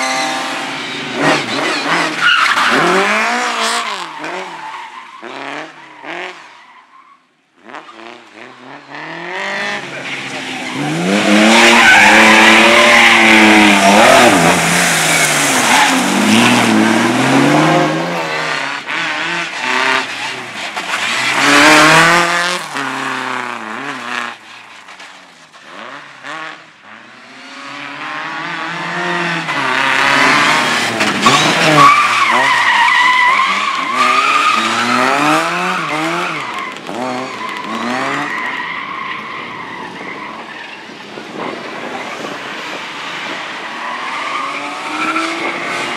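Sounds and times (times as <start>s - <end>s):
car engine revving: 7.7s - 24.4s, 25.8s - 38.7s.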